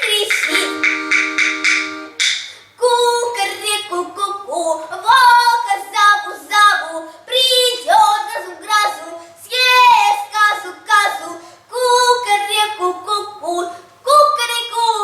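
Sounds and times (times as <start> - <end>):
child singing a melody: 0.0 - 1.6, 2.7 - 15.0.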